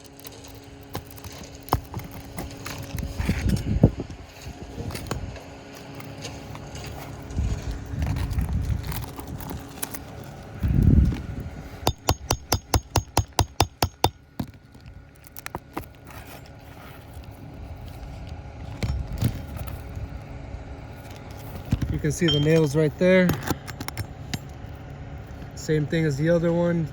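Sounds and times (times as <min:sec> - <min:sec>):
sharp metallic taps on nail: 0:11.9 - 0:14.2.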